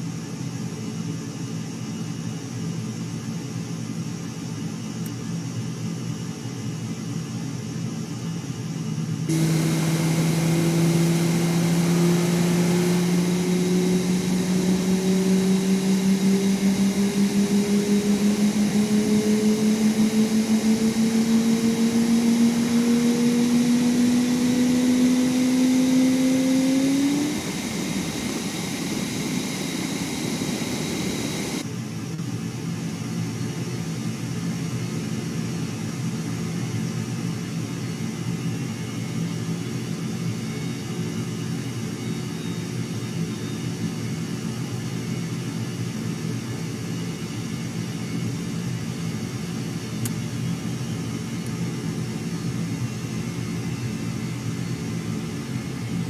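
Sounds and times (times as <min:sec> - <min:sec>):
aircraft engine hum rising: 0:08.8 - 0:31.7, 0:42.9 - 0:56.0
steady rumble: 0:09.3 - 0:31.6, 0:55.0 - 0:56.0.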